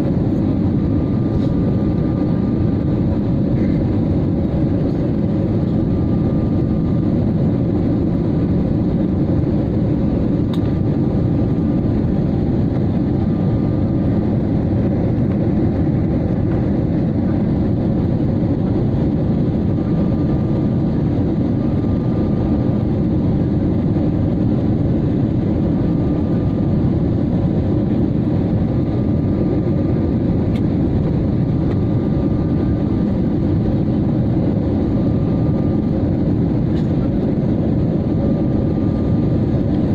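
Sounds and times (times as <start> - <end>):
aircraft engine and airflow rumble: 0.0 - 39.9.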